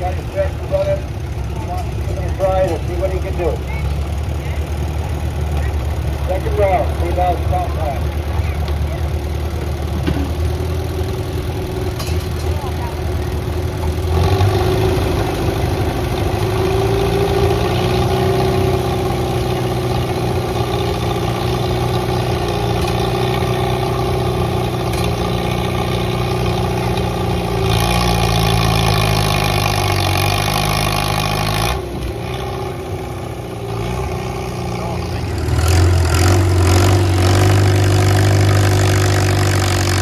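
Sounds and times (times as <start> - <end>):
tractor engine running under load: 0.0 - 40.0.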